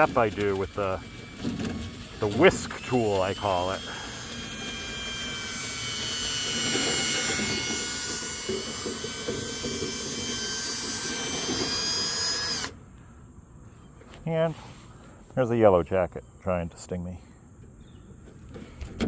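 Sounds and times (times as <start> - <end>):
power drill motor whine: 0.0 - 12.8.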